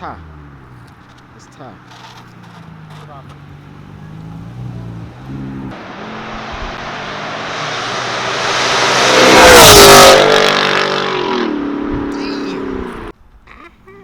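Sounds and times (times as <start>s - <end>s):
car driving past at speed: 2.7s - 12.1s.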